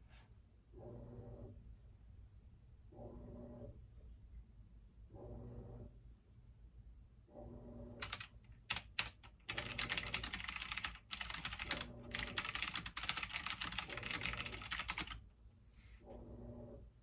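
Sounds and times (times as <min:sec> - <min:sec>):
computer keyboard typing: 0:08.0 - 0:15.2.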